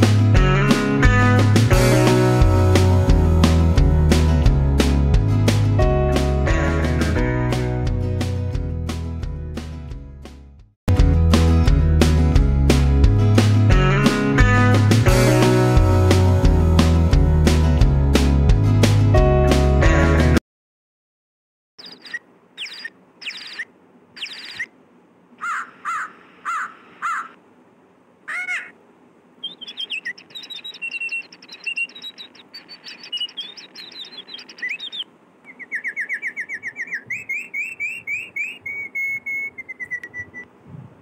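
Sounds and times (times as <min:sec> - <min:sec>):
birds singing and calling: 0:21.8 - 0:24.7, 0:29.4 - 0:40.5.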